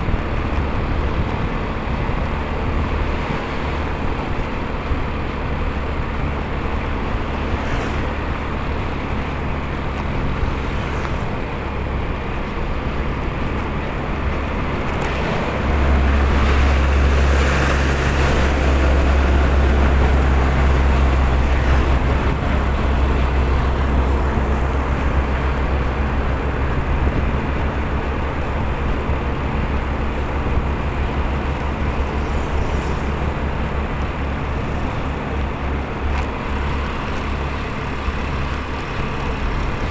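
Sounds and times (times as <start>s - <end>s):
motorcycle engine rumble: 0.0s - 39.9s
road and wind noise: 0.0s - 39.9s.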